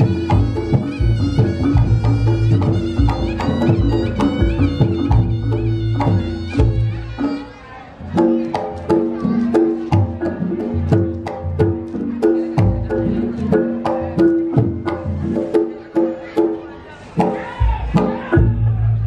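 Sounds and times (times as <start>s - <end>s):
reedy wind instrument melody: 0.0s - 8.5s
drum strokes: 0.0s - 19.0s.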